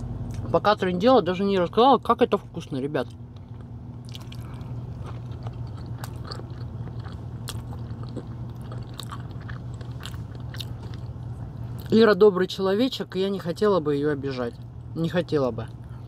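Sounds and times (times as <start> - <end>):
steady low hum: 0.0 - 16.0
person chewing: 2.4 - 12.0.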